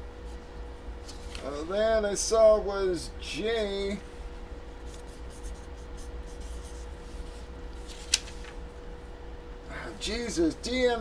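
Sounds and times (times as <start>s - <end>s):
low electrical hum: 0.0s - 11.0s
paper rustling: 1.0s - 1.5s, 6.4s - 8.6s.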